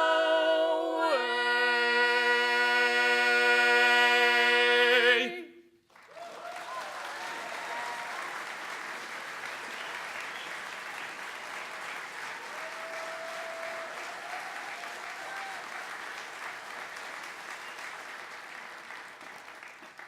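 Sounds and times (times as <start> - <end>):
audience applause: 5.9 - 20.0
voices cheering: 6.1 - 8.7, 12.1 - 16.8.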